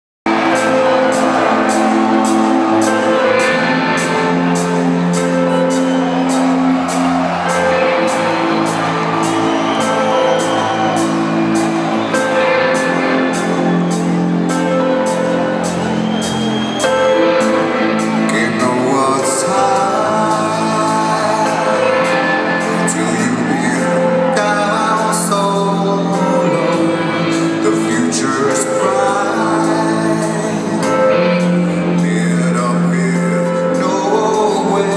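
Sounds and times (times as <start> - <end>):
crowd whooping and shouting: 0.3 - 28.3
live rock band playing: 0.3 - 34.9.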